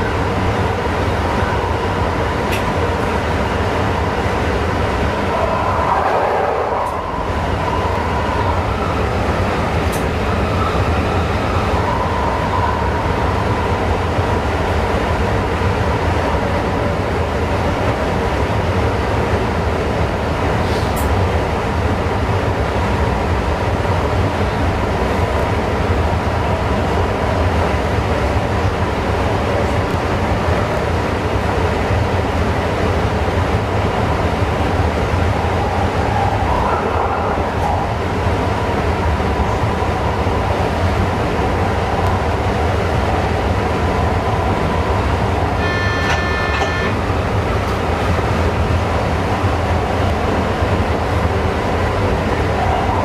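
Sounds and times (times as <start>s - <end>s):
train rumbling and rolling: 0.0s - 53.0s
high pitched tone: 45.6s - 47.0s.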